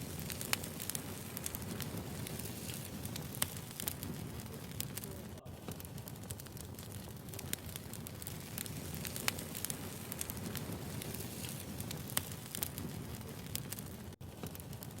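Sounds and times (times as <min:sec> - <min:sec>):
low rustle of fire: 0:00.0 - 0:15.0
wood fire crackling and popping: 0:00.0 - 0:15.0.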